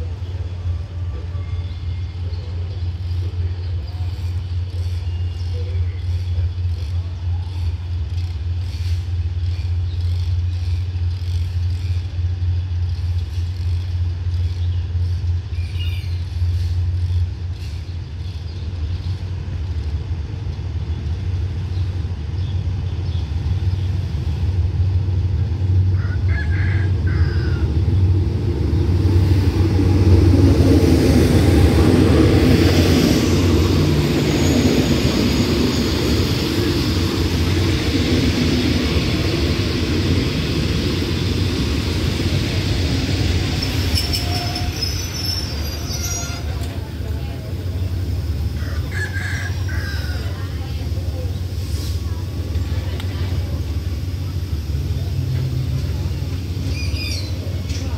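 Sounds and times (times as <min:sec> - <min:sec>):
train wheels rolling on rails: 0:00.0 - 0:57.9
diesel engine hum: 0:18.1 - 0:44.0, 0:46.4 - 0:57.9.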